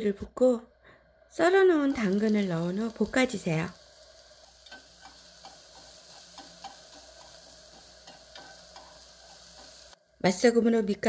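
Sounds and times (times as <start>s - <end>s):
vegetables sizzling in oil: 1.3s - 11.0s
chopsticks ticking against pan: 4.6s - 9.8s.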